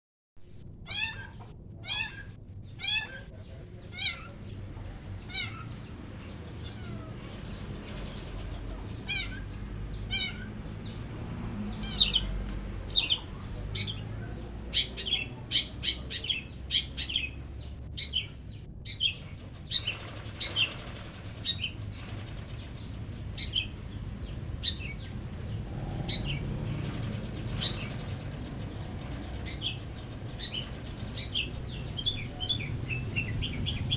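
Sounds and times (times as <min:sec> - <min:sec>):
bird giving sharp calls: 0:14.7 - 0:23.7, 0:26.0 - 0:33.9.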